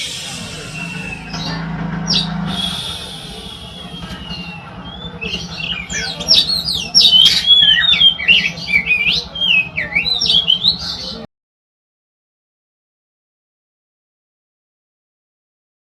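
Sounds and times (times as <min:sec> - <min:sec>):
steady low hum: 0:00.0 - 0:07.0
bird singing whistles: 0:00.0 - 0:11.1.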